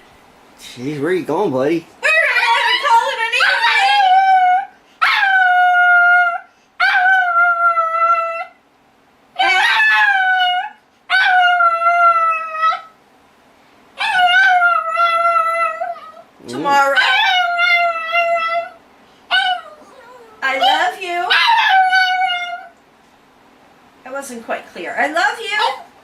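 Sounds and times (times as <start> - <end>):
dog howling: 2.0 - 8.6, 9.4 - 13.0, 14.0 - 22.8.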